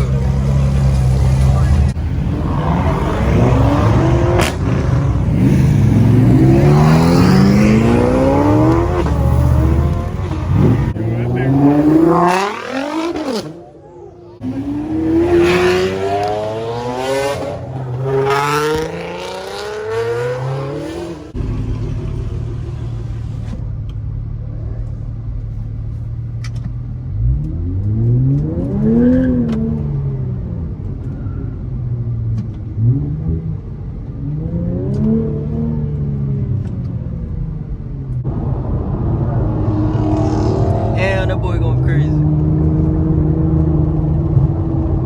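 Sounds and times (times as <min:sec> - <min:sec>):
car engine revving hard: 0:00.0 - 0:13.6, 0:14.4 - 0:23.6, 0:38.3 - 0:45.0
engine idling and blipping: 0:20.8 - 0:28.2.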